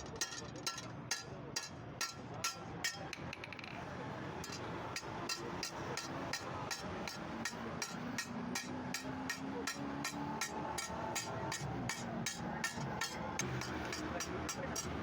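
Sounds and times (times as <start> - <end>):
hammer striking steel blade on anvil: 0.0 - 3.2, 4.4 - 15.0.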